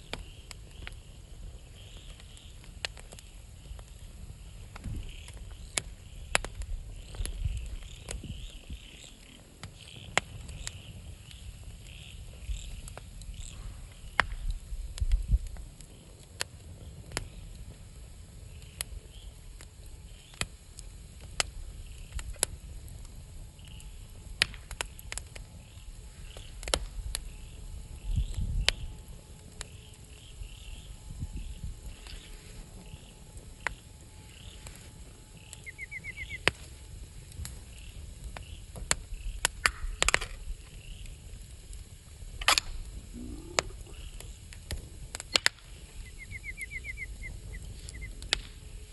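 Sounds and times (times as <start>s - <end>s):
insects chirping: 0.0s - 14.2s, 24.8s - 44.6s
campfire wood crackling: 0.0s - 48.9s.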